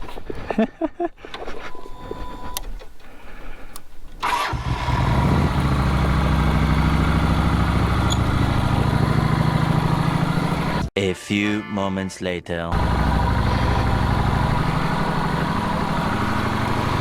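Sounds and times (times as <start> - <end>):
motorcycle engine starting and idling: 4.1 - 10.9, 12.8 - 17.0.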